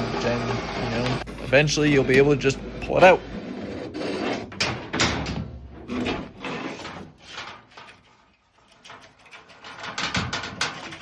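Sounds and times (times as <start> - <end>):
brush scraping in vent duct: 0.0 - 5.0, 5.7 - 11.0.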